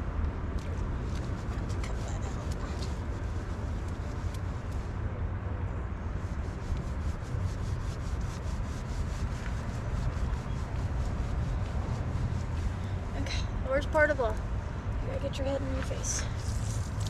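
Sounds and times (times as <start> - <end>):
constant low rumble: 0.0 - 17.0
hands scrubbing wet fur: 6.2 - 12.9.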